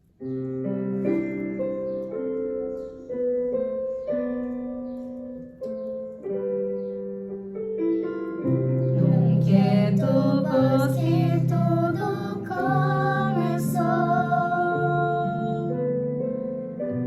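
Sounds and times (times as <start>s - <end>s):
piano playing slow chords: 0.0s - 17.0s.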